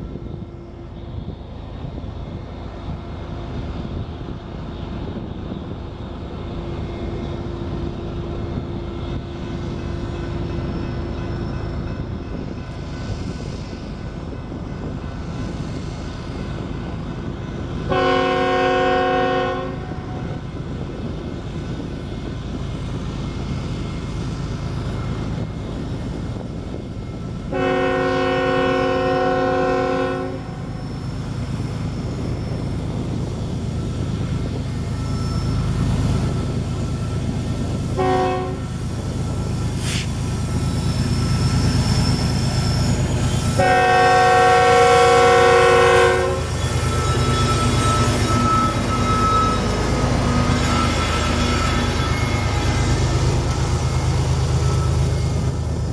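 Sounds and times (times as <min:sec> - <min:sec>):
diesel locomotive rumble: 0:00.0 - 0:55.9
locomotive air horn blasts: 0:17.9 - 0:20.4, 0:27.5 - 0:30.7, 0:38.0 - 0:38.7, 0:43.5 - 0:52.5.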